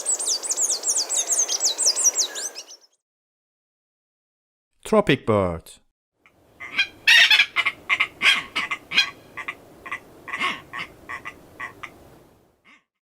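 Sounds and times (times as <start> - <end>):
bird croaking calls: 6.6 - 12.0.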